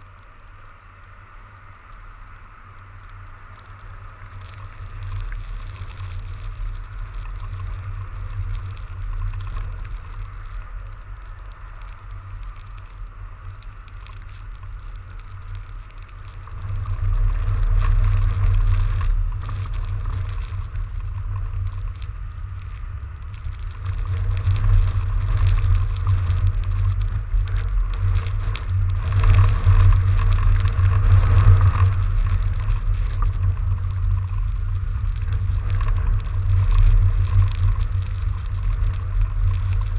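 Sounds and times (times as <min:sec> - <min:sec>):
bike ride noise: 0:00.0 - 0:39.9
wind rumbling on microphone: 0:00.0 - 0:39.9.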